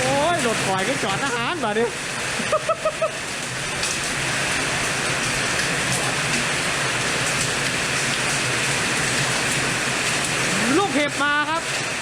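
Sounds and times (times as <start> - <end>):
heavy rain pouring: 0.0 - 12.0
ticks of raindrops: 0.0 - 12.0.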